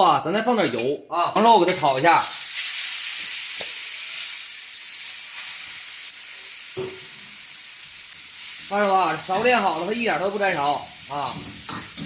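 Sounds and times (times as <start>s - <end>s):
meat sizzling in hot oil: 2.1s - 12.0s
spatula knocking on wok: 11.3s - 12.0s.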